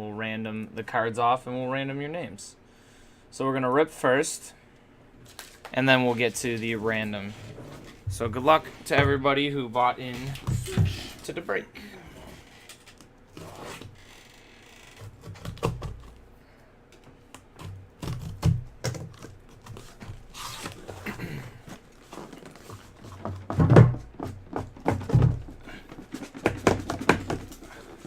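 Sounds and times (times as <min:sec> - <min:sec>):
packaging rustling: 0:05.2 - 0:06.4, 0:21.6 - 0:23.5.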